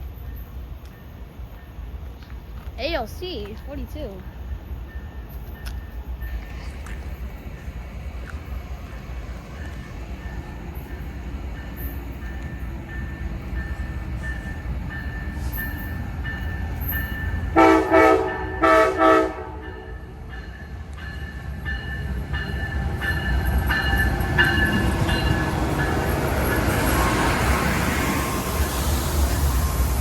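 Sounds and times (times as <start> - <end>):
train rumbling: 0.0 - 30.0
train horn blasts: 17.5 - 20.1.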